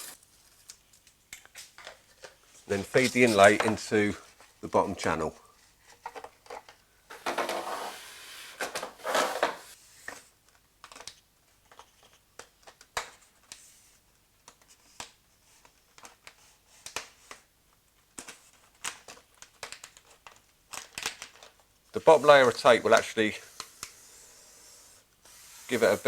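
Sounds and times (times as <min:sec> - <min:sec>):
strip scraping into channel: 0:07.1 - 0:09.8.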